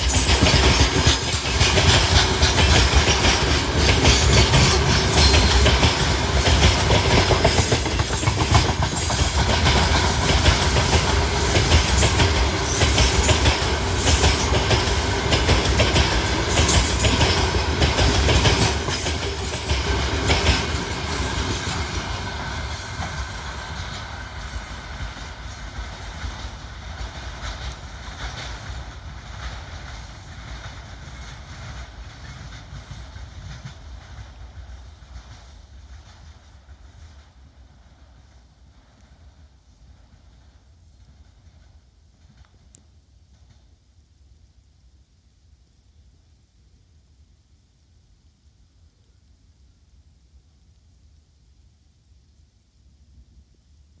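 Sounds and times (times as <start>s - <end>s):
wheels clattering over rail joints: 0.0s - 28.6s
freight wagons rolling past: 0.0s - 29.7s
high wheel squeal: 0.1s - 17.4s.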